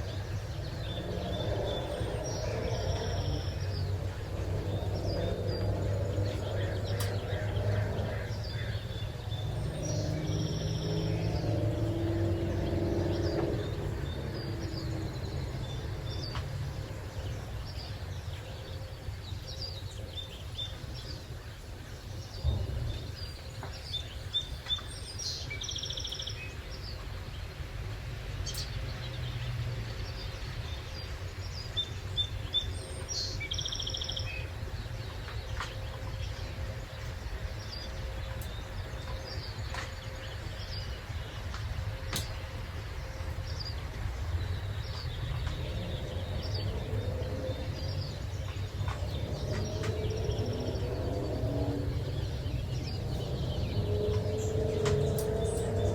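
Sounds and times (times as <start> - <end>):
songbirds chirping and trilling: 0.0 - 55.9
low background rumble: 26.5 - 55.9.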